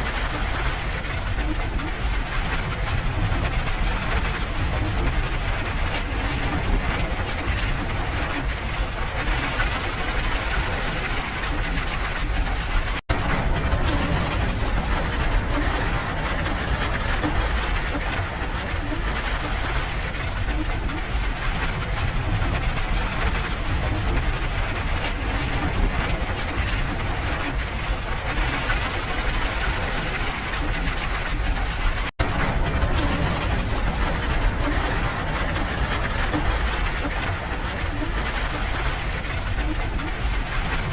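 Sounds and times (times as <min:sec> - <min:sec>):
steady rain: 0:00.0 - 0:40.9
low rumble: 0:10.2 - 0:40.9.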